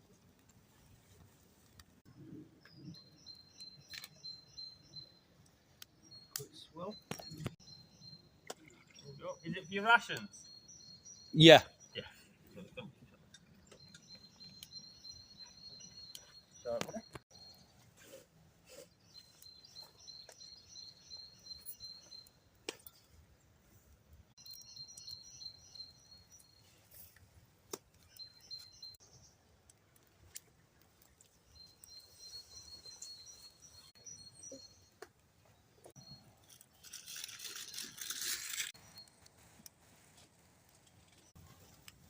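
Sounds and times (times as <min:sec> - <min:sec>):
songbird singing high trills: 0:08.9 - 0:12.1, 0:24.4 - 0:26.6, 0:31.5 - 0:34.9
rustling noise: 0:36.4 - 0:42.0.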